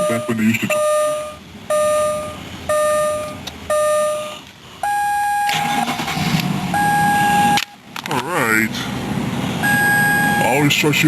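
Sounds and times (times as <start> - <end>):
high beep: 0.0 - 5.7, 6.7 - 7.7, 9.6 - 10.6
car warning chime: 0.0 - 6.1, 6.7 - 7.8, 9.6 - 10.7
car engine cranking and starting: 5.4 - 8.7.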